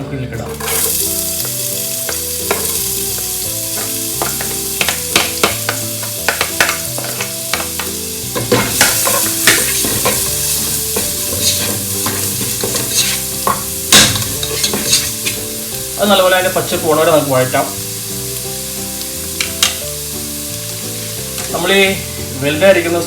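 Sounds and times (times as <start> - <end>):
food sizzling in hot oil: 0.5 - 23.0
spatula scraping a pan: 3.7 - 15.5.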